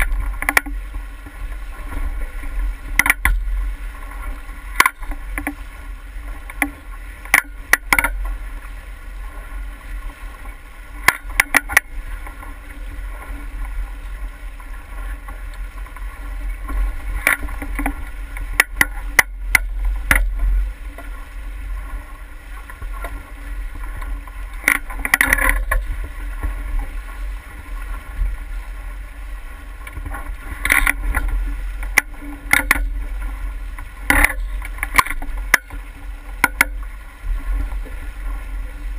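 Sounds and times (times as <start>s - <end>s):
sharp clicks and knocks: 0.0s - 0.8s, 2.9s - 3.5s, 4.7s - 5.6s, 6.4s - 8.3s, 11.0s - 12.4s, 16.7s - 21.1s, 24.0s - 26.5s, 29.8s - 33.0s, 33.8s - 36.9s
water splashing: 0.0s - 38.9s
wind rumble on microphone: 0.0s - 38.9s.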